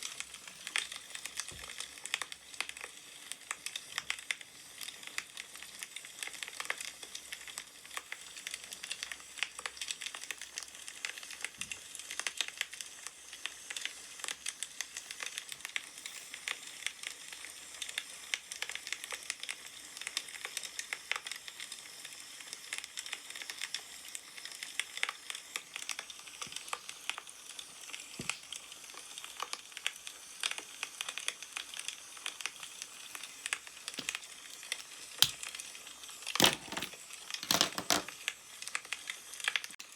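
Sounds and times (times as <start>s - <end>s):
firewood crackling and popping: 22.9s - 36.5s.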